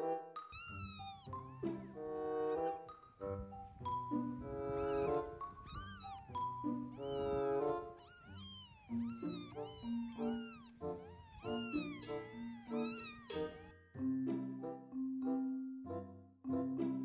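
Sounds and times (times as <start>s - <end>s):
background music with held notes: 0.0s - 8.0s, 8.8s - 17.0s
kittens mewing: 0.6s - 2.0s, 3.4s - 13.8s.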